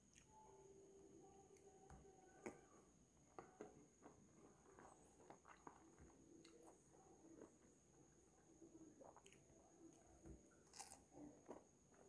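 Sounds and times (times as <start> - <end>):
crunchy chewing: 3.3 - 8.1, 8.9 - 12.0.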